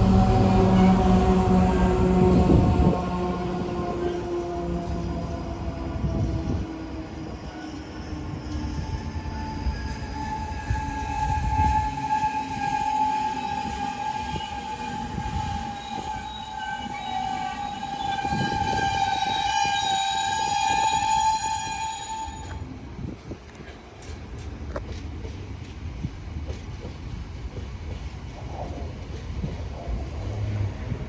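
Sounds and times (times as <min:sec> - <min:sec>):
steady high tone with overtones: 0:00.0 - 0:06.3
train wheels rumbling on rail: 0:00.0 - 0:31.0.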